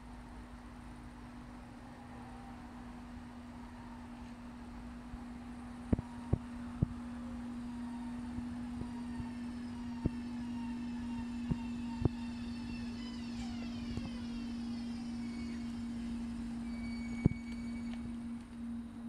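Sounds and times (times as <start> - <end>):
electric train approaching: 0.0 - 19.0
faint high whine: 0.0 - 19.0
steady low hum: 0.0 - 19.0.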